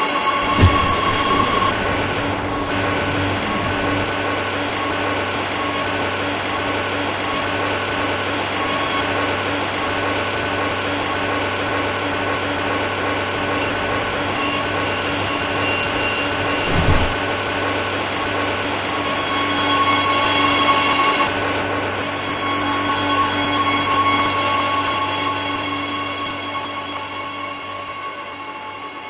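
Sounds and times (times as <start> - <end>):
underground train rumble: 0.0 - 6.6, 10.2 - 25.1
train motor whine: 0.0 - 28.2
brief low thump: 0.4 - 4.0, 16.5 - 17.3.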